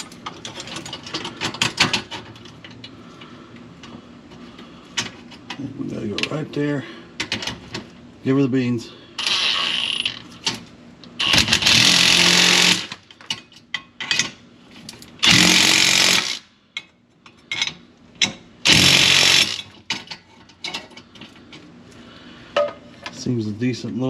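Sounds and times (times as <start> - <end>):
handheld power tool running: 9.2 - 10.2, 11.2 - 13.0, 15.2 - 16.4, 18.7 - 19.7.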